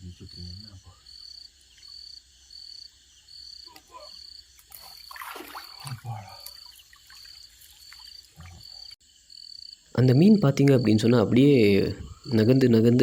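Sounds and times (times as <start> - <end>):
water splashing: 4.6 - 9.0.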